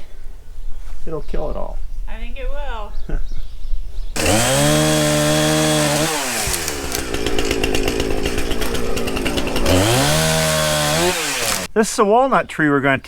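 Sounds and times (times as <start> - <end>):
chainsaw cutting wood: 4.2 - 11.7.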